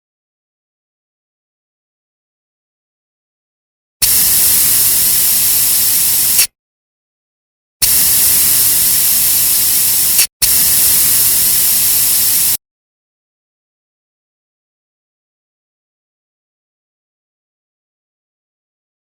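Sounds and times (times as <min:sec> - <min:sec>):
compressed air hissing: 0:04.0 - 0:06.5, 0:07.8 - 0:12.6.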